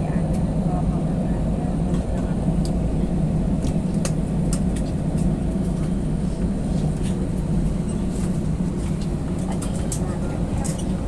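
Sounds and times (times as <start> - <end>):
light clicks and rattles: 9.0 - 11.0.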